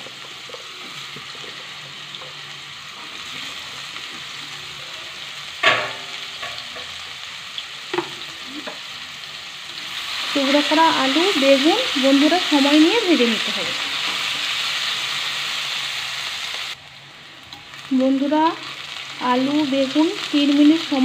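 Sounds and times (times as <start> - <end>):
vegetables sizzling in hot oil: 0.0 - 21.0
knocks on a pan: 5.6 - 6.6.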